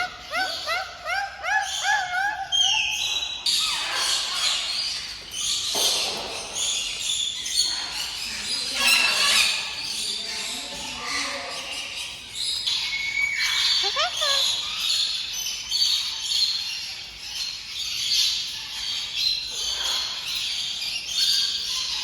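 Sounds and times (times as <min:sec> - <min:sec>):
rising bird calls: 0:00.0 - 0:03.4
birds chirping and squawking: 0:00.0 - 0:22.0.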